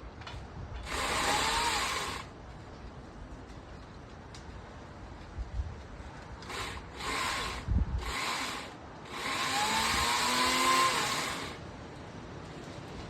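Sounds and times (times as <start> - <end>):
electric chainsaw motor whine: 0.8 - 2.3, 6.4 - 11.6.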